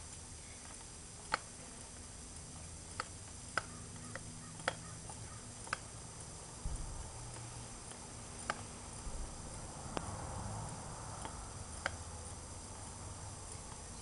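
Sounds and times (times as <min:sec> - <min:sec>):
bicycle pump clicking: 0:00.0 - 0:14.0
soft rush of air: 0:06.4 - 0:14.0.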